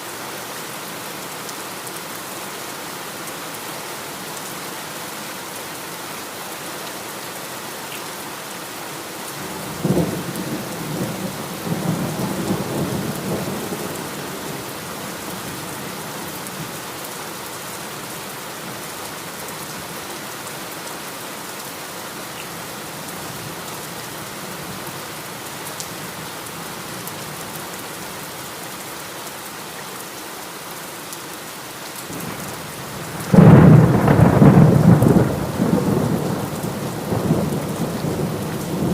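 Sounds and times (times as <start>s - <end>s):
heavy rain falling: 0.0s - 38.9s
thunderclap rumbling: 33.2s - 38.9s.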